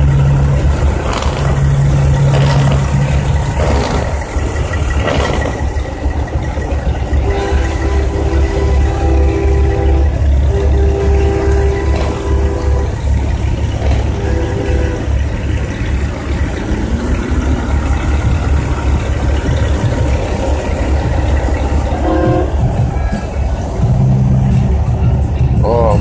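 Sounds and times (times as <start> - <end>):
diesel truck engines idling: 0.0 - 26.0
horn-like tones: 6.5 - 15.8, 19.4 - 24.8.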